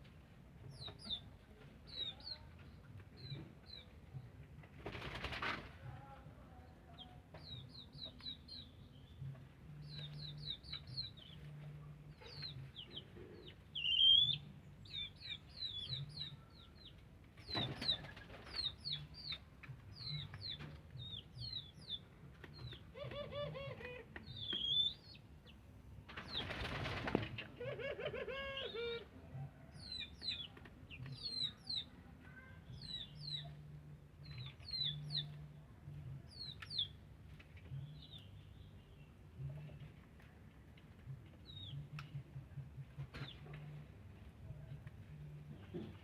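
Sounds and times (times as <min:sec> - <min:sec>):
dove flapping wings: 0:04.8 - 0:05.7, 0:26.1 - 0:27.5
small birds chirping: 0:12.2 - 0:23.1, 0:24.2 - 0:25.6, 0:29.7 - 0:35.5.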